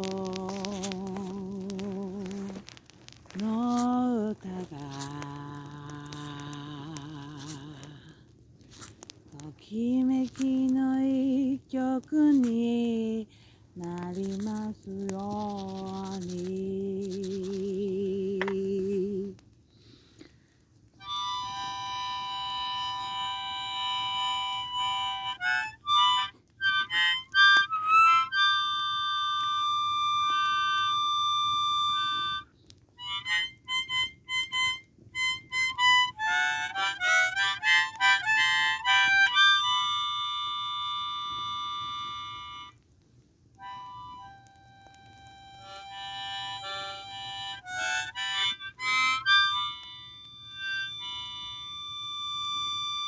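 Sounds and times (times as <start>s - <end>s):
harmonica playing single notes: 4.6s - 8.0s, 21.0s - 42.8s, 43.6s - 53.0s.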